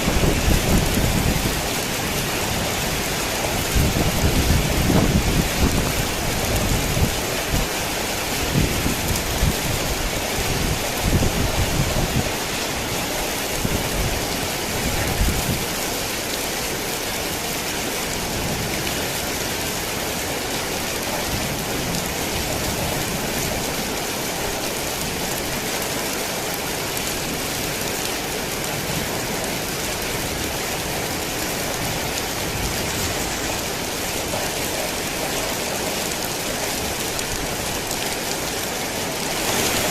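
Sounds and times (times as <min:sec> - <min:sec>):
thunder rumbling: 0:00.0 - 0:07.6, 0:39.3 - 0:39.9
heavy rain falling: 0:00.0 - 0:39.9.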